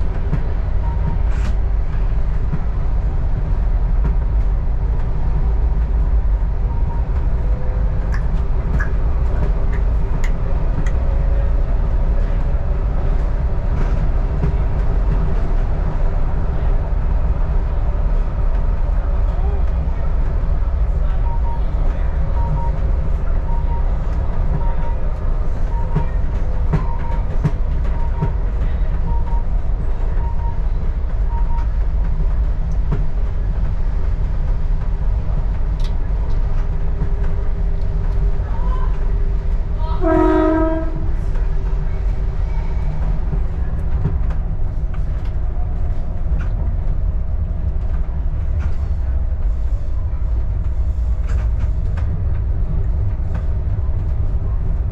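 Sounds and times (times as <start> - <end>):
railcar rumbling on track: 0.0 - 54.9
short beeps: 23.4 - 23.9, 29.0 - 29.5, 30.1 - 31.7
train horn blast: 40.0 - 41.1.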